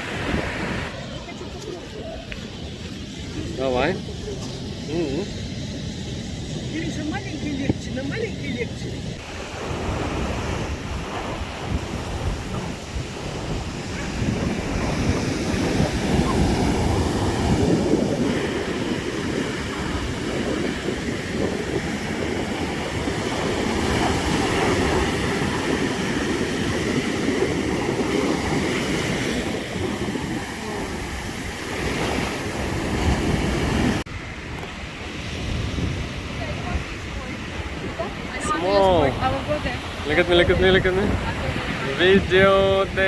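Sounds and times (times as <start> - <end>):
ocean surf washing on shore: 0.0 - 43.0
wind buffeting microphone: 0.0 - 43.0.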